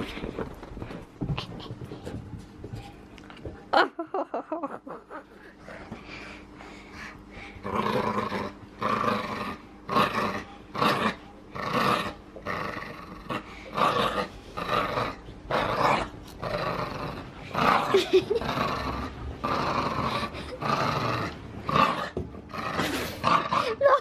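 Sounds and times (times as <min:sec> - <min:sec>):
dog growling: 0:07.4 - 0:24.0.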